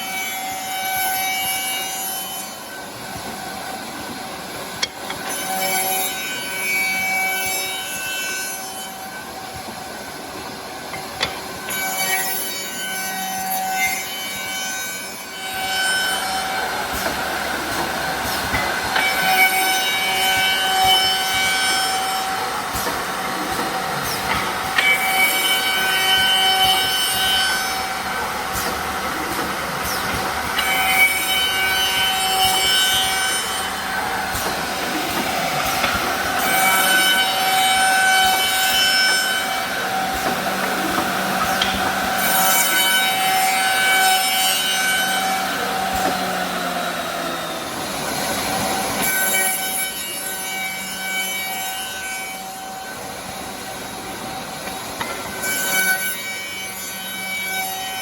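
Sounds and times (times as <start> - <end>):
cutter heads whining: 0.0 - 58.0
wood cutting bursts: 16.0 - 50.4.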